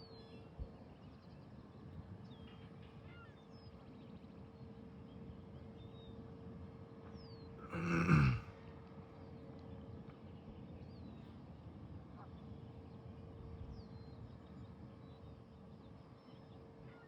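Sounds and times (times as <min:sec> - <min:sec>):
faint constant hum: 0:00.0 - 0:17.0
person groaning: 0:07.6 - 0:08.5.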